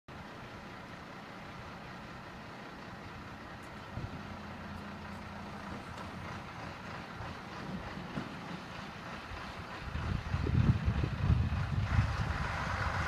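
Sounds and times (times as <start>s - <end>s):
fire engine running: 0.1s - 13.0s
wind-like rushing noise: 9.4s - 13.0s.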